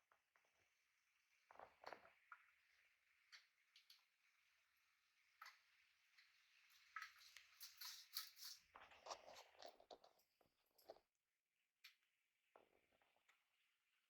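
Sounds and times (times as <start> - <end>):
parrots clicking and scratching: 7.0 - 10.1.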